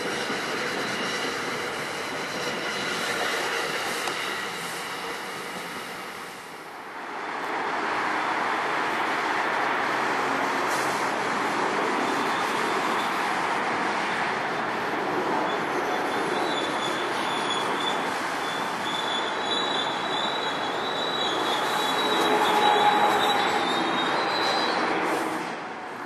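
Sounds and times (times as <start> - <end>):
train wheels on rails: 0.0 - 26.0
high-pitched wheel squeal: 15.4 - 25.2.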